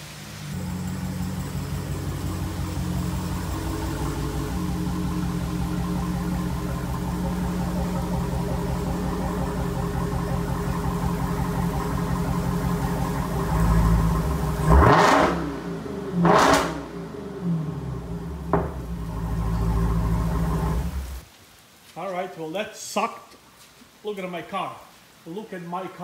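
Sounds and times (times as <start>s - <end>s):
car engine idling and revving: 0.0s - 21.2s.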